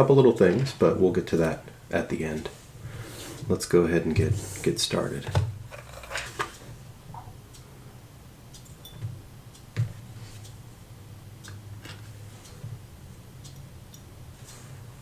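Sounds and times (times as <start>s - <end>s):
metal tools clicking and tapping: 8.6s - 9.2s.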